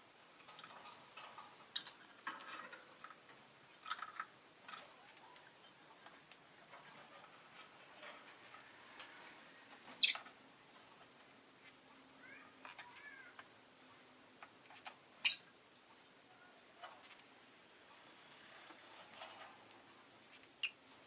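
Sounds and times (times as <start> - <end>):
lovebird chirping and clicking: 1.7 - 2.0, 10.0 - 10.3, 15.2 - 15.5, 20.6 - 20.8.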